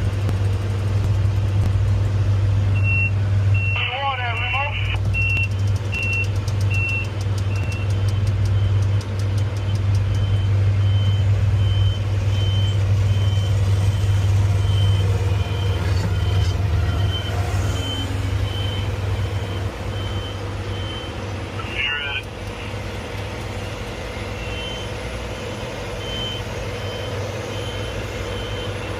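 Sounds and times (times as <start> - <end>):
crane engine running: 0.0 - 28.9
motion alarm beeping: 2.8 - 22.3, 24.3 - 25.0, 26.0 - 28.9.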